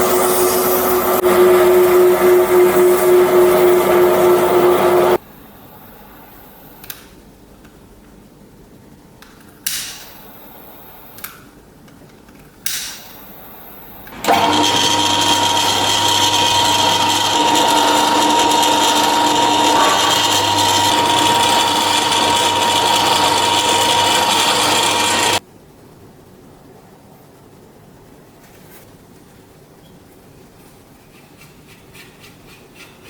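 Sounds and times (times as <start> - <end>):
power tool motor whine: 0.0 - 5.2, 14.1 - 25.4.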